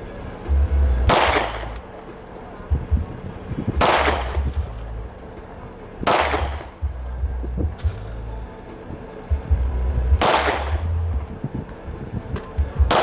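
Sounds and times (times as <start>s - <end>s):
gunshots with long echo: 1.1s - 2.0s, 3.8s - 4.6s, 6.0s - 6.8s, 10.2s - 11.0s.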